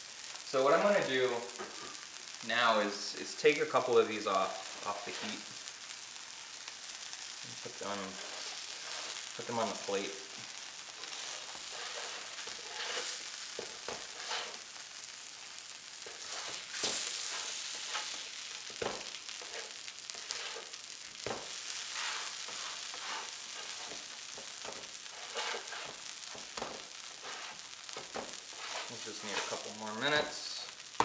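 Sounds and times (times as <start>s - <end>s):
food sizzling on a griddle: 0.0s - 31.0s
metal spatula scraping griddle: 4.6s - 5.5s, 7.8s - 30.3s.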